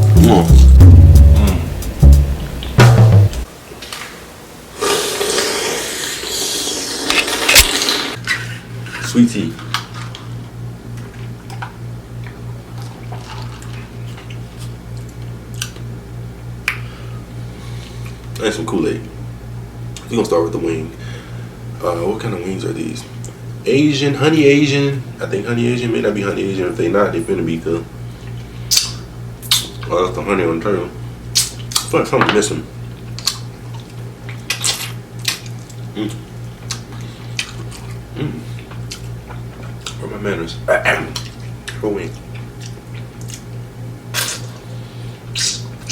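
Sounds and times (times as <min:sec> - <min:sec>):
pulsing low hum: 0:00.0 - 0:03.5
chewing and biting chicken wing: 0:31.3 - 0:32.0, 0:32.9 - 0:40.0, 0:40.8 - 0:45.9.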